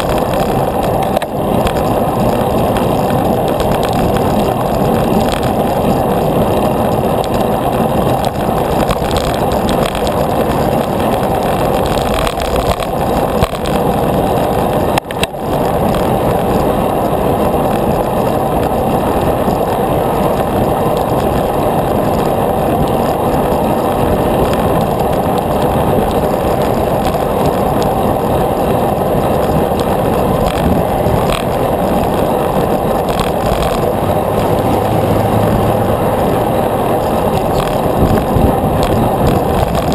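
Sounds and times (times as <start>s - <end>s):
road noise: 0.0s - 39.9s
wind rushing: 15.5s - 39.9s.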